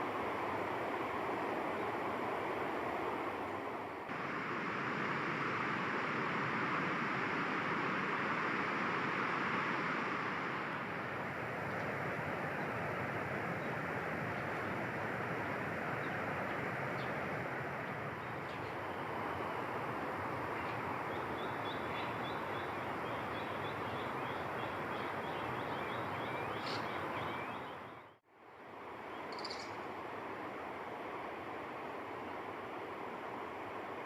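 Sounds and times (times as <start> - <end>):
steady rushing noise: 0.0 - 23.4.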